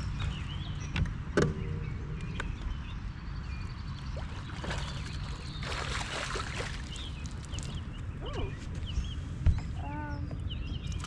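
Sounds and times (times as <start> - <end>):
fish splashing in water: 4.2 - 7.8.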